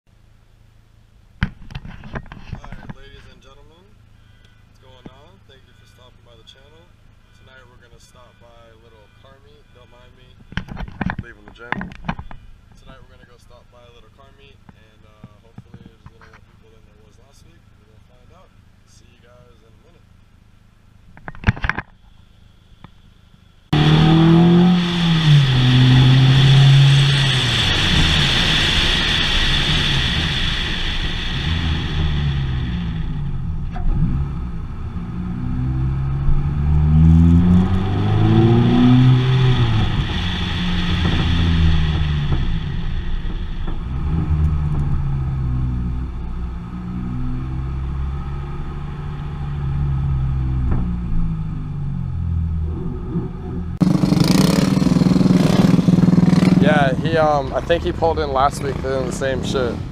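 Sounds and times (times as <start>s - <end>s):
road and wind noise: 0.1s - 59.9s
car engine accelerating: 23.7s - 59.9s.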